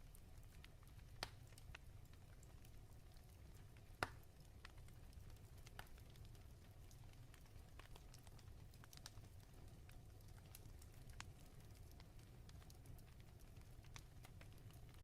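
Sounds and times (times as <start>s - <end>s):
fire crackling: 0.0s - 15.0s
fire popping: 0.1s - 15.0s.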